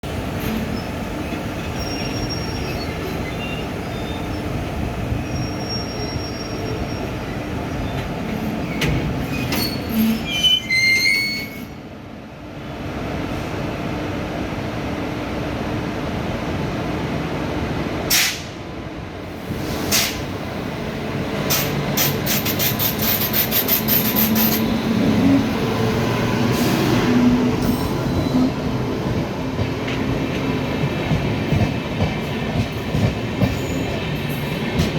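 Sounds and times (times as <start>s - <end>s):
train coaches rumbling: 0.0s - 34.9s
train wheels squealing: 0.4s - 11.8s, 21.5s - 28.8s, 33.3s - 34.9s.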